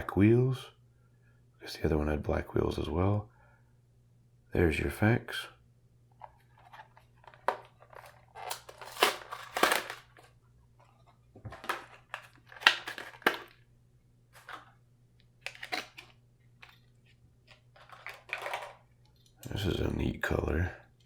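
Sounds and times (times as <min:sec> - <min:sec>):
plastic packaging crinkling and tearing: 0:06.6 - 0:10.3, 0:11.5 - 0:13.6, 0:15.4 - 0:16.9, 0:17.6 - 0:18.8.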